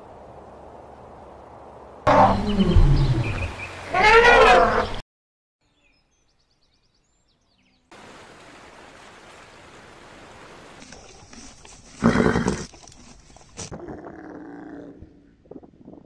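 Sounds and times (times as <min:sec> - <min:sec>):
faint outdoor hiss: 0:00.0 - 0:03.9, 0:05.6 - 0:13.7
elephant calling: 0:03.9 - 0:05.0.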